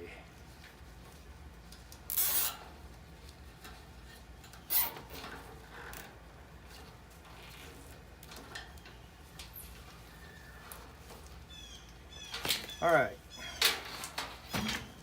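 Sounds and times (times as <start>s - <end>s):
small clicks and rustles: 0.3s - 12.8s
sharp metal scrape: 2.1s - 2.6s, 4.7s - 5.1s.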